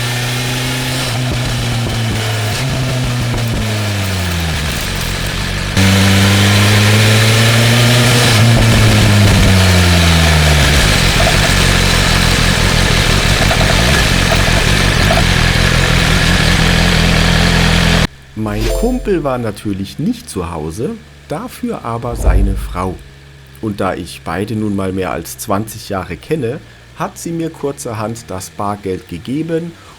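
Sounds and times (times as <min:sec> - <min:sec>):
wind rushing: 0:22.1 - 0:23.2.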